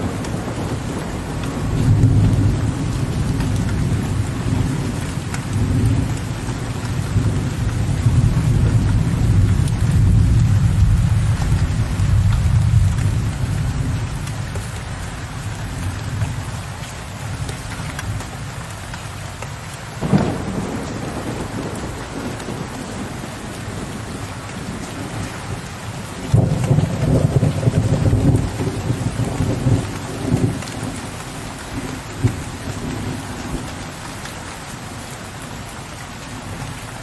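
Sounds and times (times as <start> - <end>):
thunder rumbling: 0.0 - 15.1, 20.0 - 33.8
steady rain: 0.0 - 37.0
thunderclap: 20.0 - 23.1, 26.2 - 31.0.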